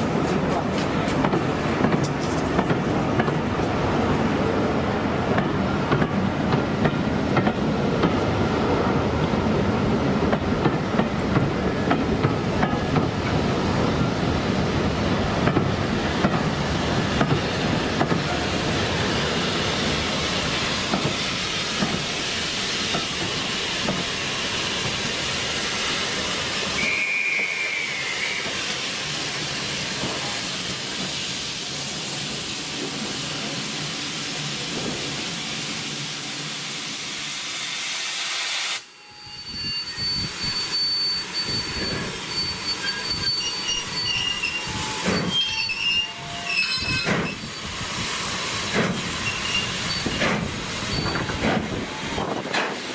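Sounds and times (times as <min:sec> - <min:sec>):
steam train running: 0:00.0 - 0:52.9
hiss of steam: 0:11.4 - 0:52.9
wheels squealing on rails: 0:22.8 - 0:31.0, 0:38.9 - 0:52.8
steam whistle: 0:26.7 - 0:28.6, 0:38.6 - 0:47.0.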